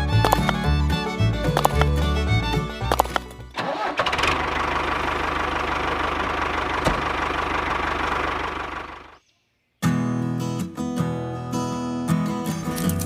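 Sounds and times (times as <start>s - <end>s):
small engine running pump: 1.5s - 2.0s, 2.8s - 9.1s.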